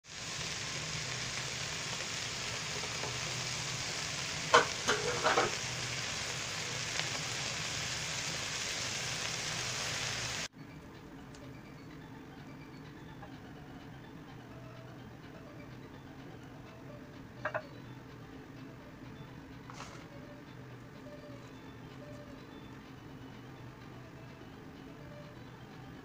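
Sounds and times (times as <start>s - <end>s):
food sizzling in a pot: 0.0s - 10.5s.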